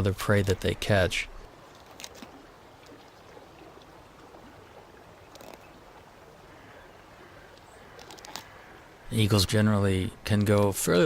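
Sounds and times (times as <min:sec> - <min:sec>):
river water flowing: 0:00.0 - 0:11.0
small clicks: 0:05.3 - 0:05.7, 0:07.5 - 0:08.5.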